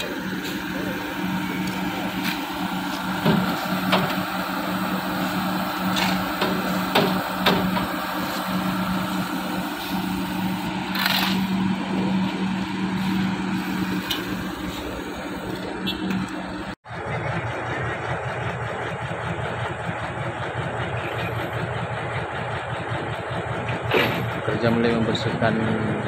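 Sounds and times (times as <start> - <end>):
heavy engine humming: 0.0 - 26.0
sharp knocks: 6.0 - 7.9.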